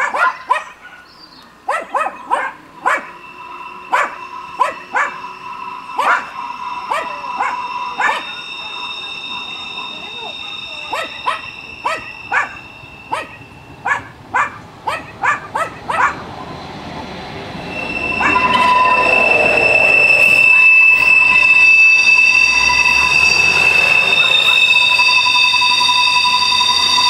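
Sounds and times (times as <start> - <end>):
dog barking: 0.0 - 1.1, 1.7 - 3.2, 10.9 - 16.2
railcar rolling past: 1.5 - 27.0
train wheels squealing: 1.9 - 27.0.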